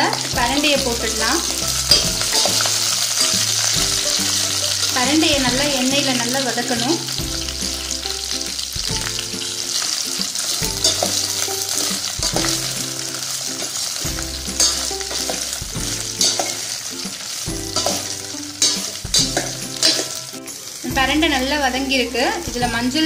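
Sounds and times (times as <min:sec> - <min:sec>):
stems sizzling in hot oil: 0:00.0 - 0:23.0
ladle clinking against pan: 0:01.5 - 0:04.8, 0:10.5 - 0:12.7, 0:13.7 - 0:16.8, 0:17.6 - 0:20.4.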